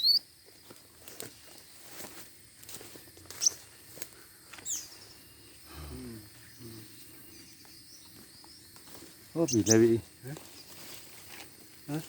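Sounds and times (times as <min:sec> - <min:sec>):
bird chirping: 0:00.0 - 0:00.4, 0:03.0 - 0:10.8.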